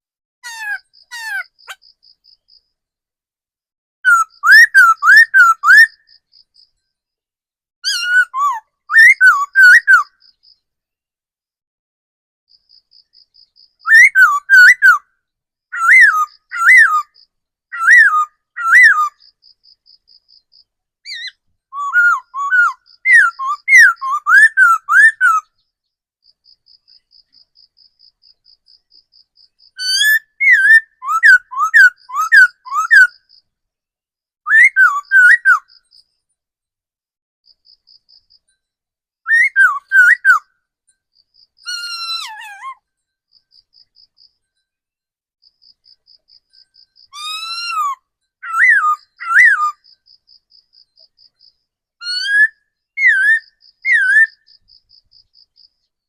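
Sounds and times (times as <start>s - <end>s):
bird singing whistled phrases: 4.1s - 6.0s, 7.8s - 10.1s, 13.8s - 15.0s, 15.8s - 17.1s, 17.7s - 19.2s, 21.1s - 25.5s, 29.8s - 33.2s, 34.5s - 35.7s, 39.3s - 40.4s, 47.1s - 49.8s, 52.0s - 54.5s.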